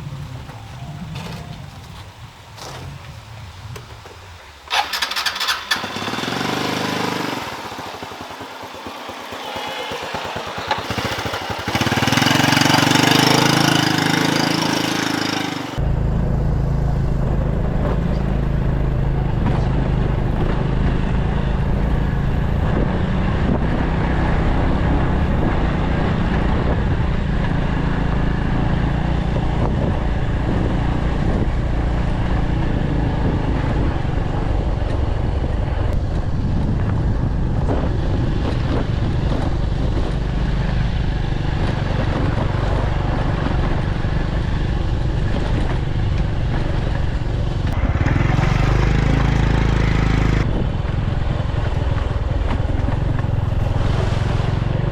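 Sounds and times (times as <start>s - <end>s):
small engine humming: 4.7s - 15.9s, 17.9s - 54.9s.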